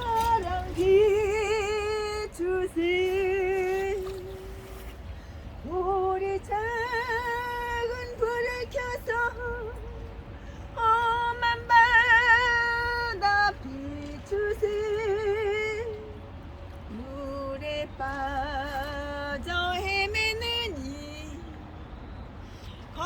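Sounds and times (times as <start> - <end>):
woman singing a hymn: 0.0 - 5.0, 5.6 - 21.6, 22.8 - 23.0.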